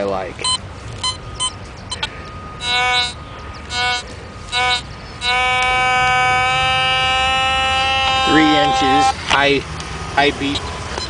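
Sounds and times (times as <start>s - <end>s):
metal detector beeps: 0.4s - 6.1s, 7.5s - 9.2s
metal detector steady tone: 0.4s - 9.2s.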